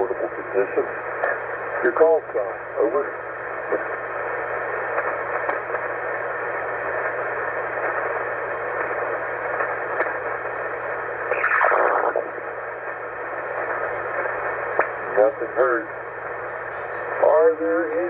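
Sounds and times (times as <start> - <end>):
radio static: 0.0 - 18.0
garbled radio burst: 11.3 - 12.5.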